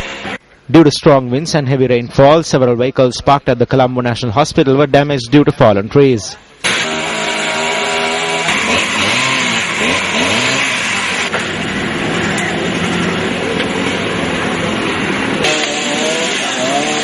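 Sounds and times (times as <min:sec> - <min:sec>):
road noise: 0:06.4 - 0:17.0
vehicle engines revving: 0:06.6 - 0:17.0.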